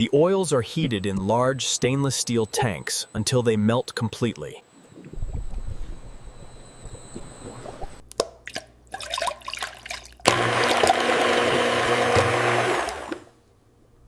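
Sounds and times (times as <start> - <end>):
low motor hum: 4.9 - 8.1, 10.3 - 13.3
liquid splashing: 7.4 - 10.9
machine churning liquid: 8.5 - 13.2.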